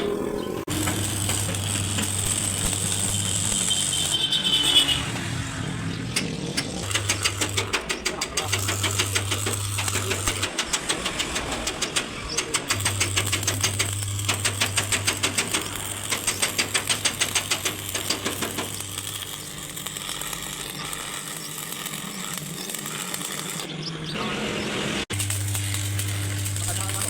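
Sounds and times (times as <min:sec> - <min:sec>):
steady mechanical noise: 0:00.0 - 0:27.0
rapid mechanical knocking: 0:06.1 - 0:18.9.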